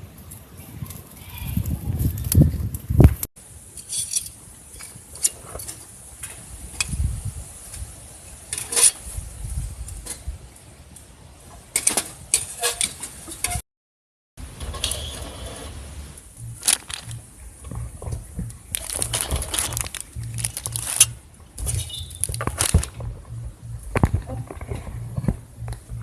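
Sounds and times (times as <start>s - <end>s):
low rumble gusts: 15.7s - 26.0s
objects clicking and knocking: 16.4s - 23.3s.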